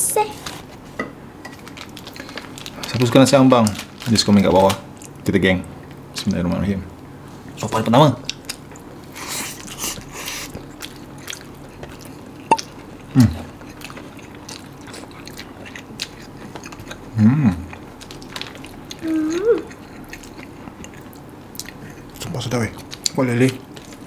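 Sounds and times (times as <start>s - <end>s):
person chewing with wet clicks: 8.2s - 8.9s, 9.6s - 24.0s.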